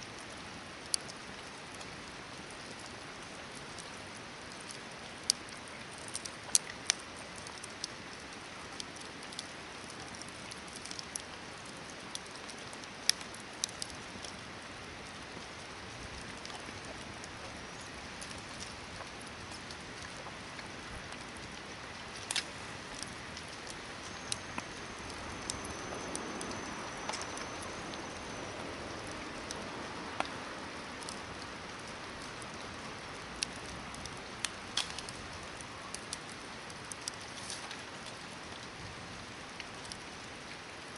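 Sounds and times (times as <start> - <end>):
campfire hiss: 0.0 - 40.9
fire crackles and pops: 0.0 - 40.9
faint high whistle: 24.0 - 29.1.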